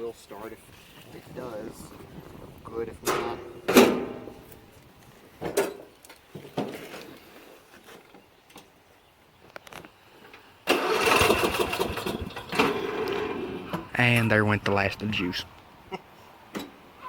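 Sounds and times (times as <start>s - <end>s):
electric starter cranking engine: 10.6s - 13.8s.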